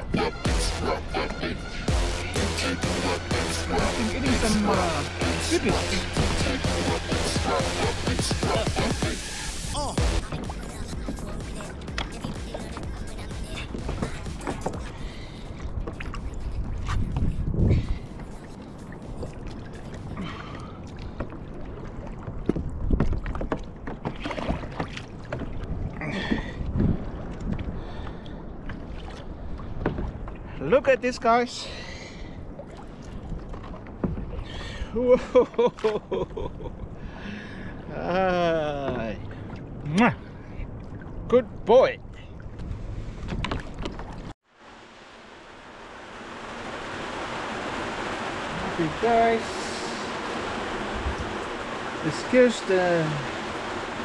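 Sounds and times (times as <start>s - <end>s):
water slapping around kayak: 1.7s - 30.8s, 32.2s - 37.2s, 42.4s - 54.0s
rain hissing: 1.9s - 15.4s, 44.5s - 54.0s
wind buffeting microphone: 11.0s - 20.2s, 25.5s - 30.4s, 46.4s - 52.4s
knocks and taps on hull: 22.3s - 25.6s.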